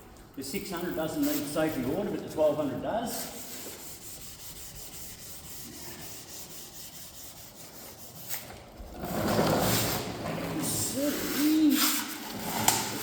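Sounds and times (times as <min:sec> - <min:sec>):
wet sandpaper rubbing plastic: 0:00.9 - 0:02.2, 0:03.1 - 0:08.5, 0:10.8 - 0:13.0.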